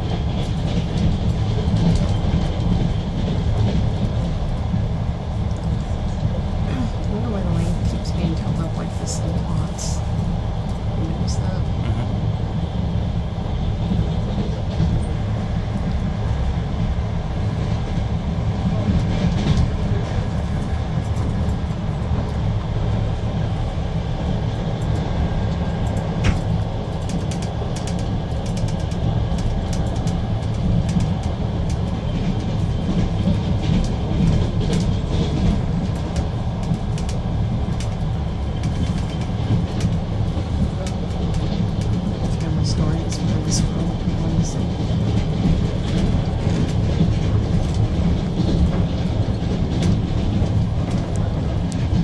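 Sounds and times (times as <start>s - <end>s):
train wheels rumbling on rails: 0.0s - 52.0s
sharp clicks and rattles: 25.6s - 52.0s.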